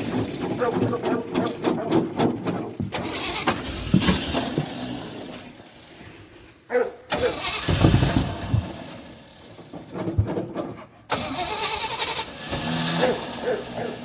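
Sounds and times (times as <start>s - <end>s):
engine cranking without starting: 0.0s - 6.0s, 7.1s - 14.0s.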